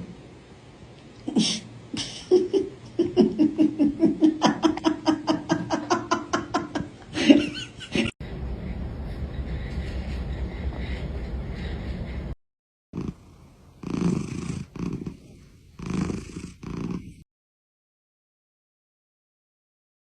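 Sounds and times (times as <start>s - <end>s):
person laughing: 1.3s - 12.3s.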